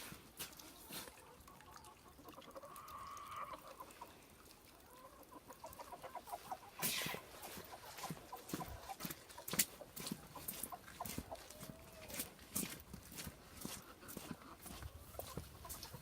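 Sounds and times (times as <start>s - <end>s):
chickens clucking: 0.7s - 16.0s
footsteps: 6.7s - 16.0s.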